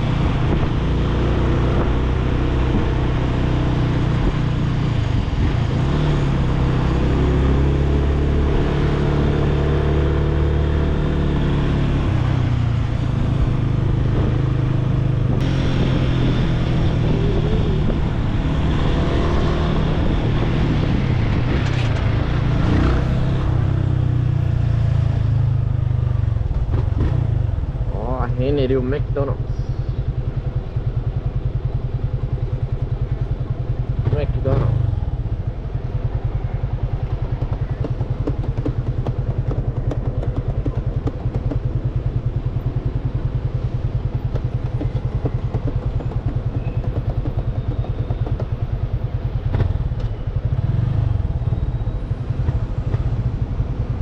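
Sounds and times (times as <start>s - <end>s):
wind noise: 0.0s - 7.6s, 11.8s - 23.8s
motorcycle engine running: 0.0s - 54.0s
road noise: 0.0s - 54.0s.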